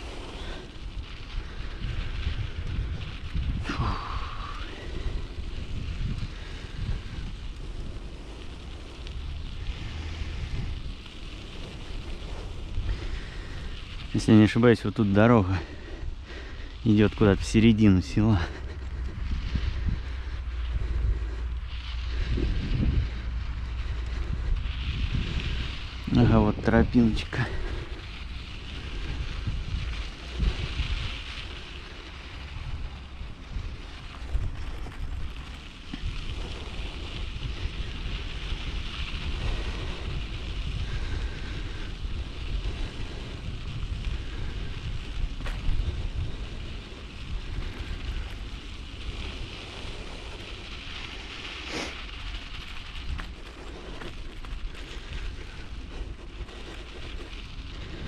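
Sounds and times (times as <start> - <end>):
bicycle tyres rolling on dirt: 0.0 - 58.0
wind buffeting microphone: 0.0 - 58.0.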